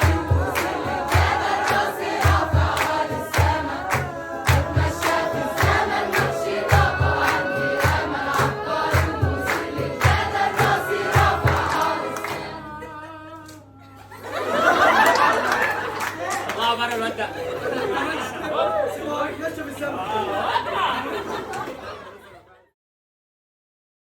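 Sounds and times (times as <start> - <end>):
low regular drum beat: 0.0 - 12.1
audience applause and cheering: 0.0 - 12.8
choir singing: 0.0 - 15.9.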